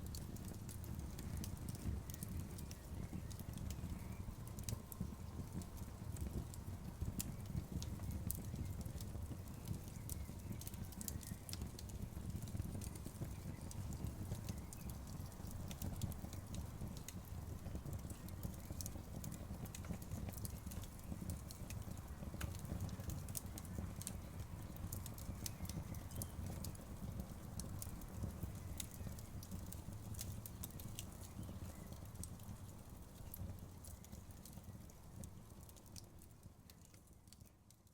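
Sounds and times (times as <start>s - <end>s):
bonfire rumbling: 0.0s - 36.1s
burning wood popping and snapping: 7.2s - 37.6s.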